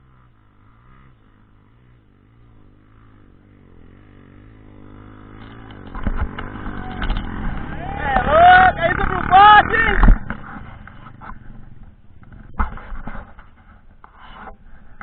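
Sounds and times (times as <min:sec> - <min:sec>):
motorcycle engine revving: 0:00.0 - 0:15.0
sharp knocks and clatter: 0:05.4 - 0:08.3, 0:10.0 - 0:15.0.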